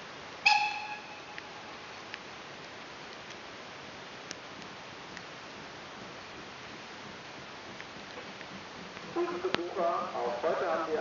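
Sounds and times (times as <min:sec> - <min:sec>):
rain hiss: 0:00.0 - 0:11.0
short high ringing tone: 0:00.5 - 0:01.7
faint ticks: 0:01.3 - 0:03.5, 0:04.2 - 0:09.7.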